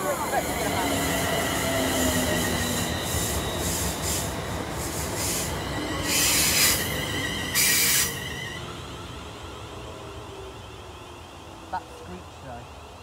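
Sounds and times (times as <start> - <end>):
loud hissing surges: 0.0 - 8.6.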